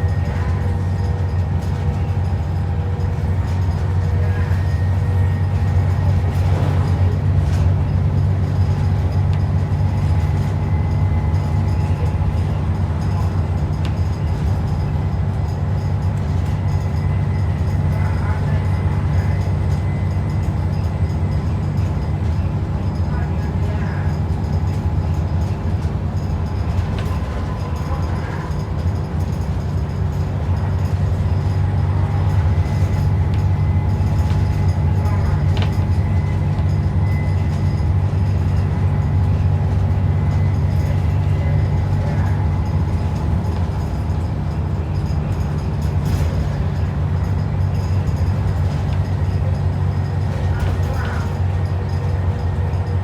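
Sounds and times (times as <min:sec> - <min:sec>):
bus engine drone: 0:00.0 - 0:53.0
road noise: 0:00.0 - 0:53.0.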